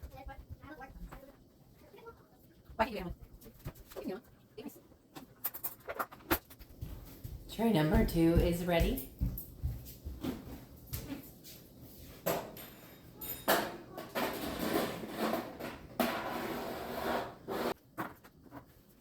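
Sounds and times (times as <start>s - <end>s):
trays clicking and knocking: 12.3s - 16.4s
tray scraping: 13.9s - 18.7s.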